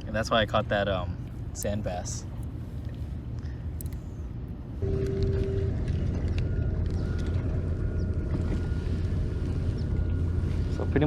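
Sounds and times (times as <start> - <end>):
boat motor running: 4.8 - 11.0.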